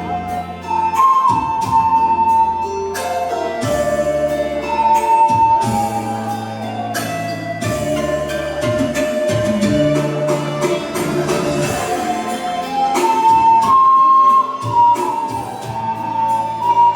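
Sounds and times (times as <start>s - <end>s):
flute-like wind melody: 0.0s - 16.9s
light percussion: 0.0s - 16.9s
sustained low accompaniment: 1.8s - 16.9s.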